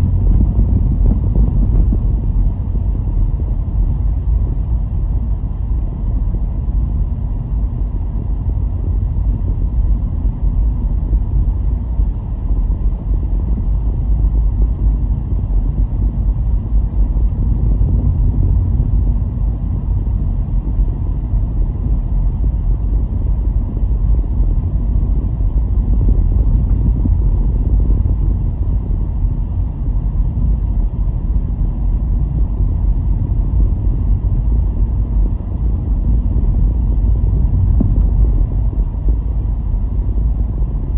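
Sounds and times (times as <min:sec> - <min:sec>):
car road and engine rumble: 0:00.0 - 0:40.9.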